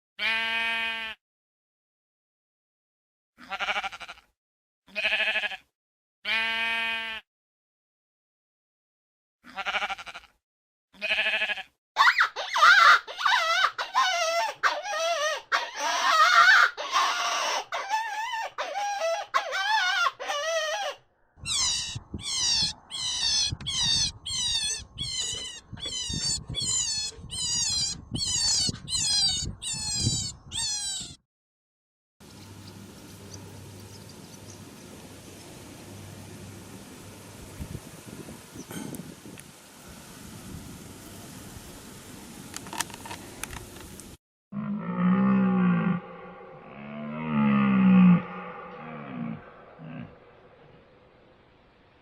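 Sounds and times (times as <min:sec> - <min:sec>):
animal cries: 0:03.4 - 0:04.3, 0:09.5 - 0:10.3, 0:11.0 - 0:31.2.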